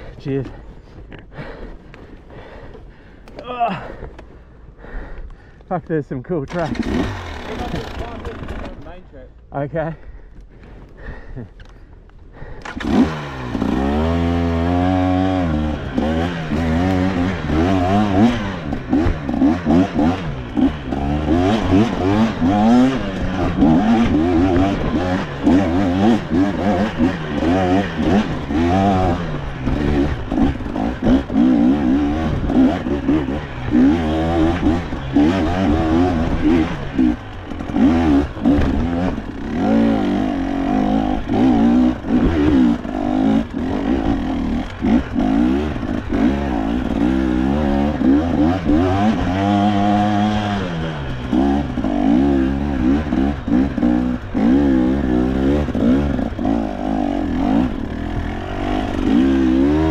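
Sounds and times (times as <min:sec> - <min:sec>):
dirt bike engine revving: 0:06.3 - 0:09.0, 0:12.4 - 0:59.9.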